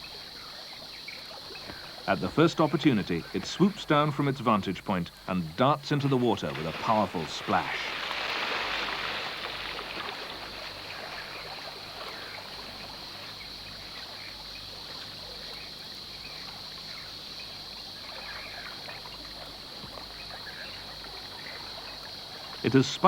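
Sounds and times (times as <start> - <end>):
water lapping and trickling: 0.0 - 23.0
water splash: 5.6 - 13.3.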